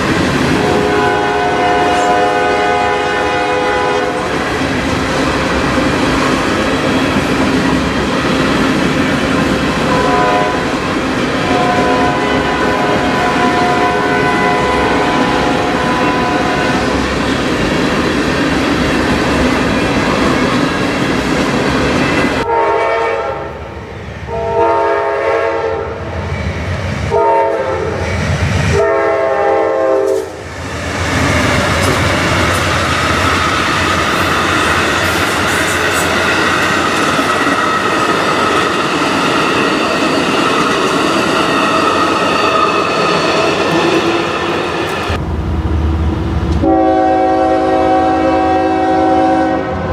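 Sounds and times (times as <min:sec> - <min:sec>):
train wheels clattering over rails: 0:00.0 - 0:22.4, 0:30.0 - 0:46.7
locomotive horn blasts: 0:00.5 - 0:04.4, 0:09.8 - 0:10.8, 0:11.4 - 0:17.0, 0:22.2 - 0:23.6, 0:24.3 - 0:25.9, 0:27.1 - 0:27.9, 0:28.8 - 0:30.4, 0:46.6 - 0:49.9.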